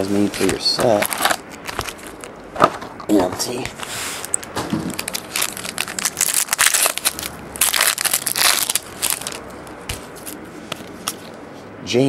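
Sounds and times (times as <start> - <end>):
foil wrappers crinkling and tearing: 0.0 - 2.4, 4.2 - 9.4.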